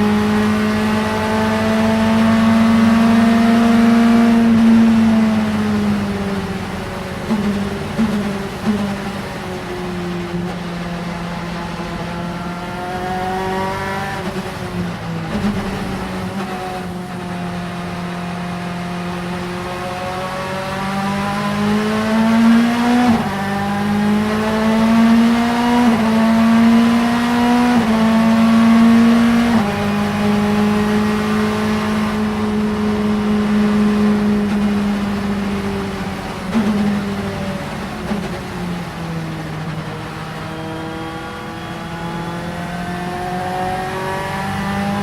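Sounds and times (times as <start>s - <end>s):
race car engine revving: 0.0s - 45.0s.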